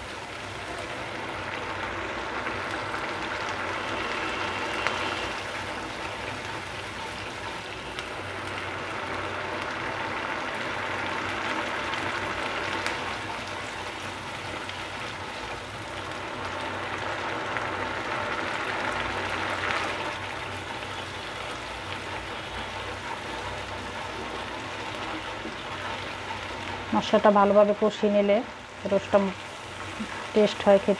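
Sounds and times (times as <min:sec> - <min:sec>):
spice paste sizzling in oil: 0:00.0 - 0:30.9
spatula stirring in a pan: 0:19.0 - 0:27.2.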